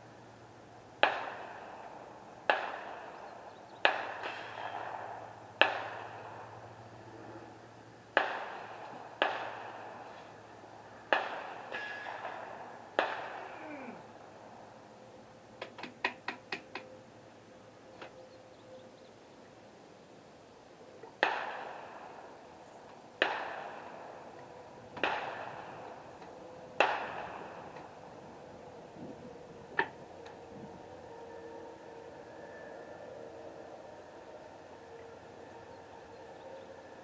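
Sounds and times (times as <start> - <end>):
gunshots with echo: 1.0 - 1.9, 2.5 - 3.2, 3.8 - 6.4, 8.2 - 10.0, 11.1 - 13.6, 21.2 - 22.3, 23.2 - 24.1, 25.0 - 26.0, 26.8 - 27.6.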